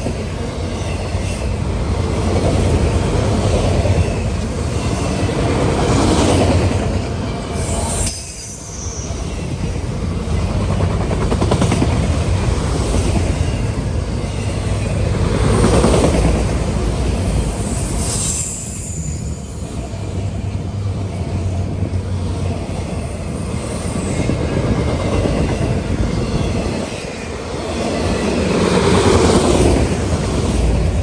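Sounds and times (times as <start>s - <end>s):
train wheels rumbling on rails: 0.0s - 31.0s
high squeal: 7.5s - 9.8s, 16.5s - 24.5s.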